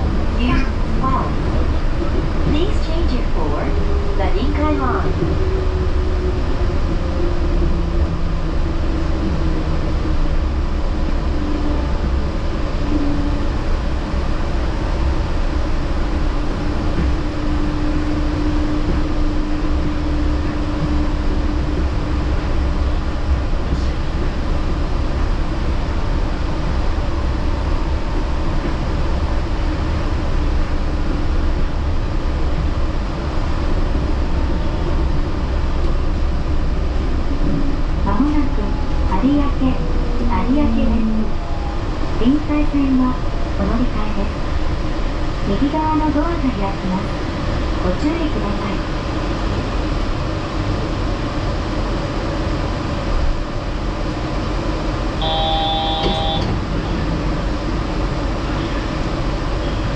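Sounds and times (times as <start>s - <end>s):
train rumble from inside: 0.0s - 59.9s
train motor tone: 55.2s - 56.8s.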